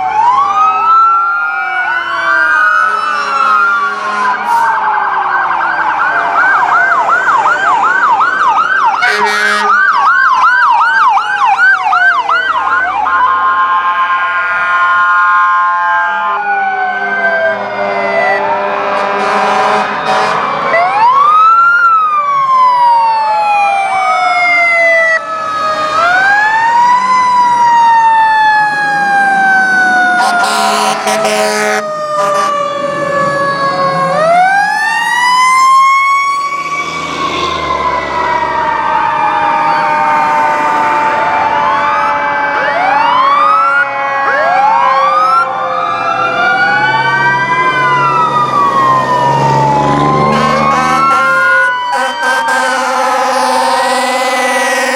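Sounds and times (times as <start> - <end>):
fire truck sirens wailing: 0.0 - 54.9
truck engines rumbling: 0.0 - 54.9
horn blasts: 2.9 - 4.8, 9.0 - 9.8, 18.4 - 20.6, 30.2 - 32.6, 50.2 - 54.9.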